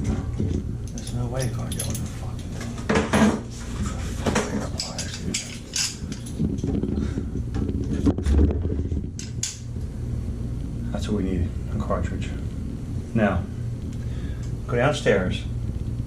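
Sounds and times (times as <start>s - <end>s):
metal tools clinking and scraping: 0.5s - 6.7s.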